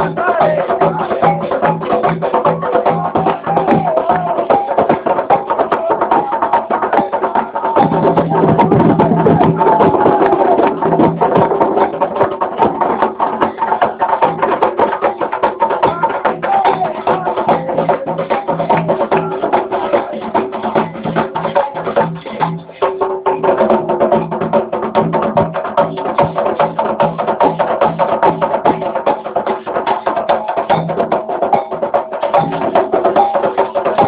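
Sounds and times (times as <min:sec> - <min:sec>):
voices singing: 0:00.0 - 0:12.2, 0:13.1 - 0:22.6
hand drums: 0:00.0 - 0:34.0
rapid clicking percussion: 0:00.0 - 0:34.0.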